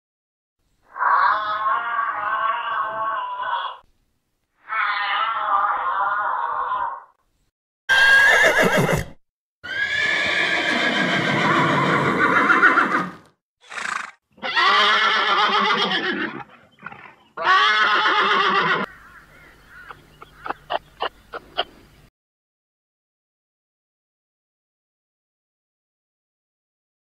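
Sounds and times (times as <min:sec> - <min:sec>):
horse whinnying: 0:07.9 - 0:18.9.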